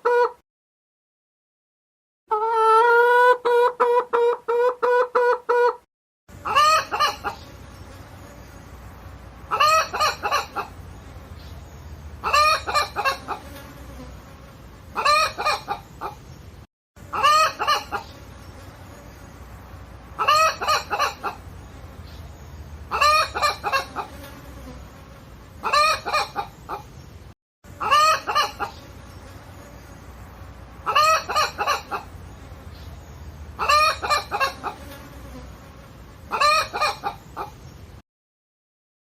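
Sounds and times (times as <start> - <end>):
hen clucking: 0.0 - 0.4, 2.3 - 8.0, 9.4 - 11.6, 12.2 - 14.1, 14.9 - 16.4, 17.0 - 18.6, 20.1 - 24.3, 25.6 - 27.0, 27.7 - 29.0, 30.8 - 35.1, 36.3 - 37.7.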